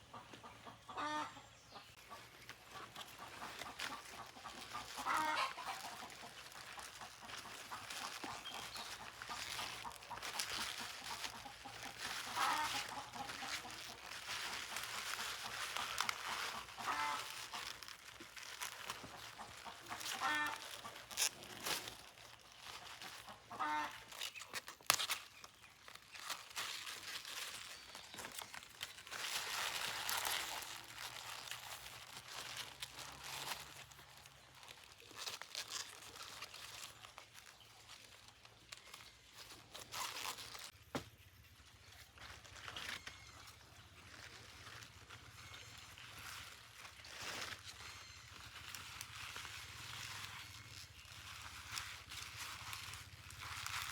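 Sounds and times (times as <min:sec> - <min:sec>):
chickens clucking: 0:00.0 - 0:24.8.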